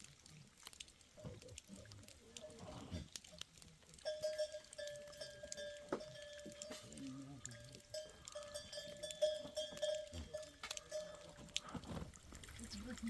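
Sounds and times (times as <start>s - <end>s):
livestock bells ringing: 4.0s - 11.6s
goats and sheep calling: 4.1s - 11.8s.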